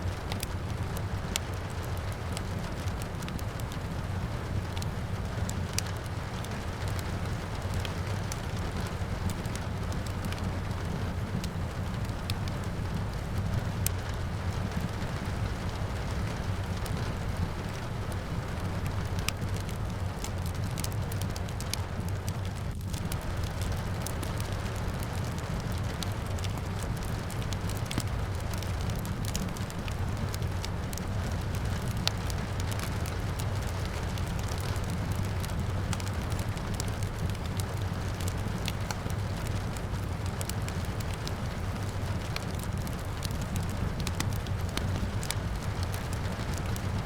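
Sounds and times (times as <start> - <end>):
wood fire crackling: 0.0 - 47.0
rain rushing: 0.1 - 47.0.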